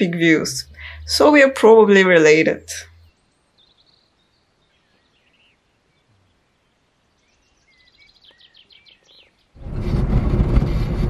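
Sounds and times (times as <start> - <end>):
faint bird chirps: 2.7 - 9.6.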